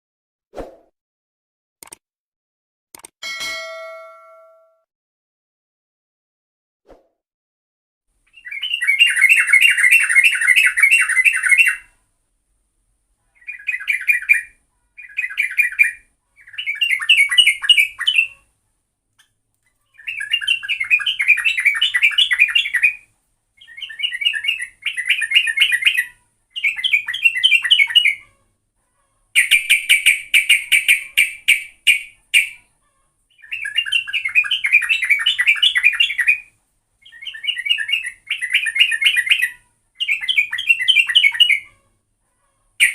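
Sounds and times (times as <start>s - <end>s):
bulbul chattering song: 29.4s - 32.7s.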